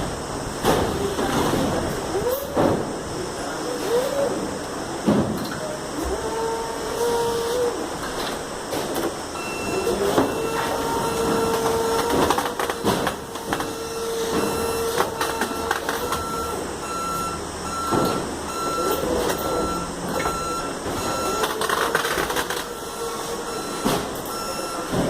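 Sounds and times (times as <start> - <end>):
loading machinery running: 0.0 - 25.0
reversing alarm beeping: 9.3 - 25.0.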